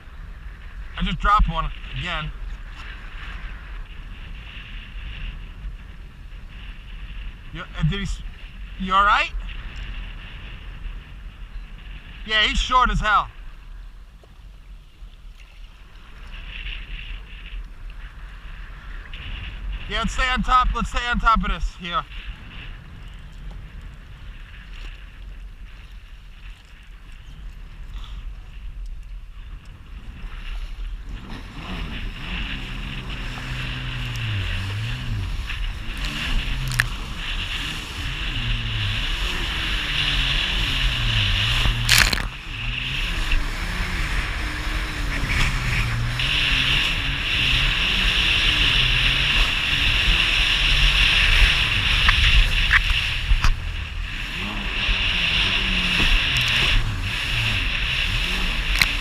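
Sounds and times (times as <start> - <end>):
wind and water hiss: 0.0 - 59.0
jet ski engine revving: 29.6 - 59.0.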